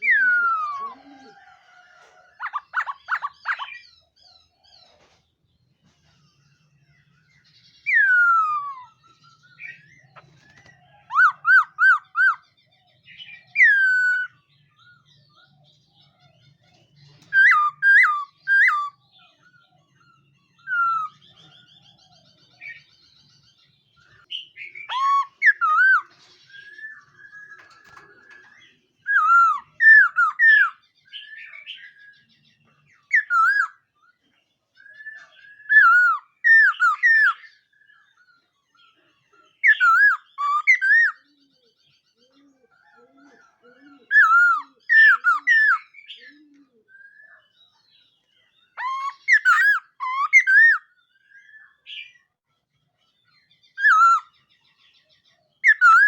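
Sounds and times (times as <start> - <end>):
bird whistling phrases: 0.0 - 3.9, 11.1 - 12.4, 17.3 - 19.0, 24.4 - 27.6, 33.1 - 33.8, 35.0 - 37.4, 44.1 - 47.5, 48.7 - 51.8, 53.8 - 54.3, 55.7 - 56.0.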